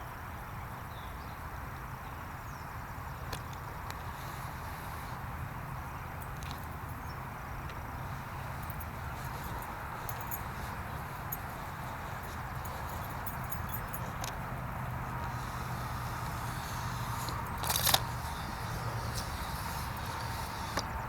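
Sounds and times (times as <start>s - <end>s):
engine running low: 0.2s - 21.0s
light clicks and rattles: 6.1s - 21.0s.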